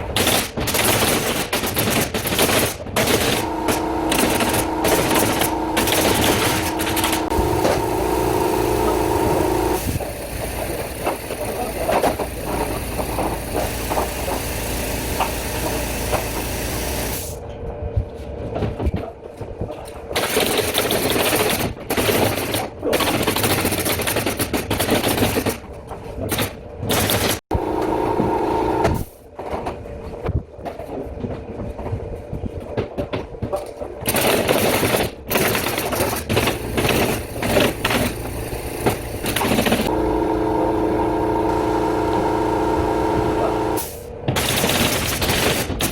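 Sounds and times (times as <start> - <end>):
pneumatic nail gun shots: 0.0 - 17.4, 26.2 - 27.5, 28.1 - 29.2, 34.0 - 40.0, 40.6 - 45.9
machine running: 3.0 - 17.4, 27.5 - 29.2, 36.3 - 45.0.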